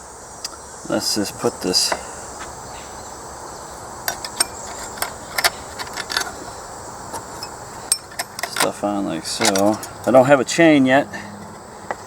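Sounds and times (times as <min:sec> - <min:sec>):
small metal parts clicking: 0:04.0 - 0:10.3.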